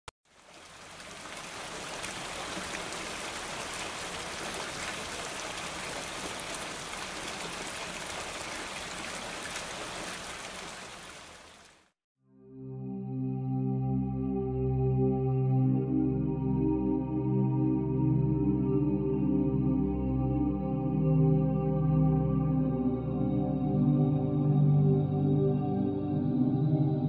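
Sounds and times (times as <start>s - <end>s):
steady rain: 0.3s - 11.9s
soft music with long notes: 12.3s - 27.0s.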